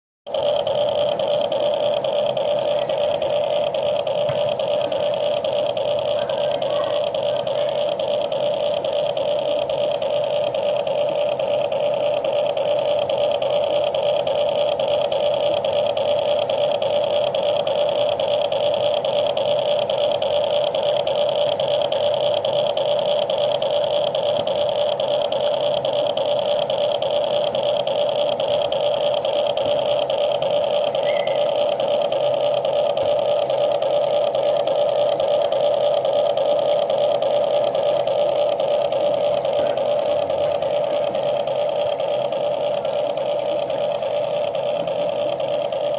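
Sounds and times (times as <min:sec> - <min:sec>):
small electric motor whining: 0:00.3 - 0:45.9.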